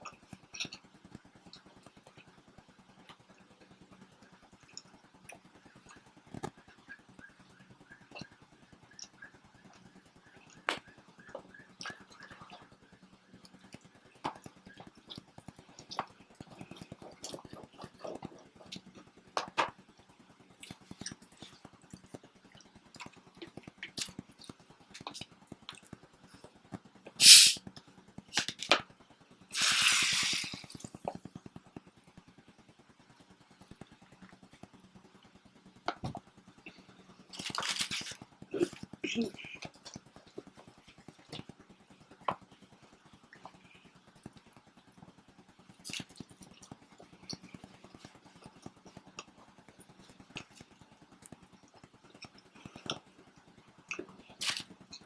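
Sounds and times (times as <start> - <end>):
soft chewing: 0.0 - 2.4, 13.3 - 19.2, 20.6 - 26.0, 45.8 - 53.3
noisy hiss: 27.2 - 27.6, 29.6 - 30.8
sharp loud noise: 27.2 - 27.6.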